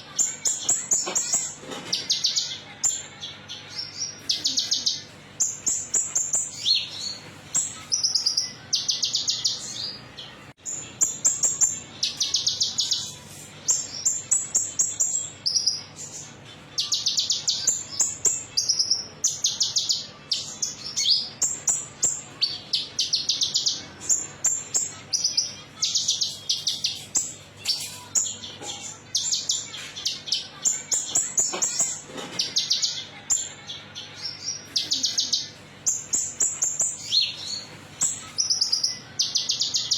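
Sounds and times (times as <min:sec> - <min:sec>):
songbird metallic chattering song: 0:16.8 - 0:39.9.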